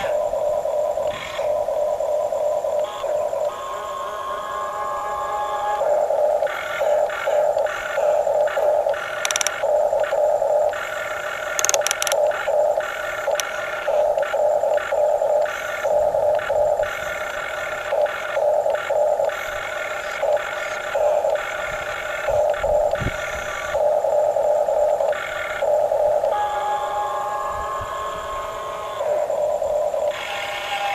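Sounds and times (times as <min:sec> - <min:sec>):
steady low hum: 0:00.0 - 0:30.9
small gear motors whining: 0:02.4 - 0:10.1, 0:10.7 - 0:23.8.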